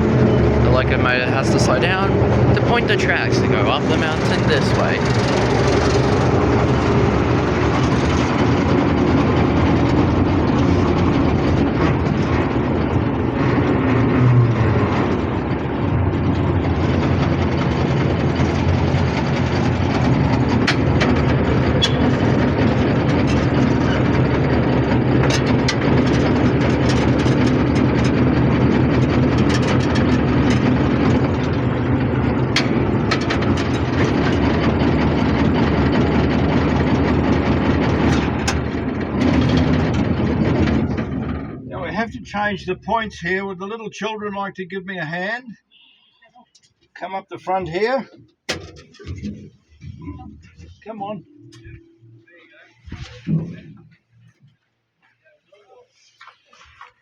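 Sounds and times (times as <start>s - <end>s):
diesel locomotive engine running: 0.0s - 43.4s.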